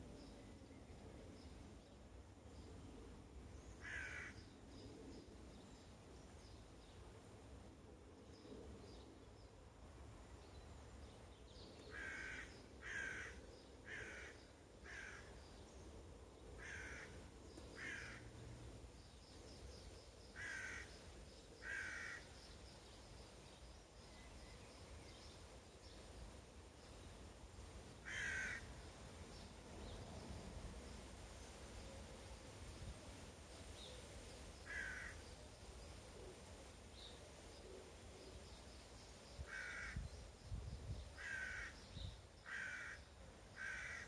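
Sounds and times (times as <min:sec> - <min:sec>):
crow cawing: 0:03.8 - 0:04.4, 0:11.9 - 0:15.3, 0:16.6 - 0:17.2, 0:17.8 - 0:18.2, 0:20.4 - 0:20.9, 0:21.6 - 0:22.3, 0:28.0 - 0:28.7, 0:34.7 - 0:35.2, 0:39.5 - 0:40.0, 0:41.2 - 0:41.8, 0:42.4 - 0:43.0, 0:43.6 - 0:44.0.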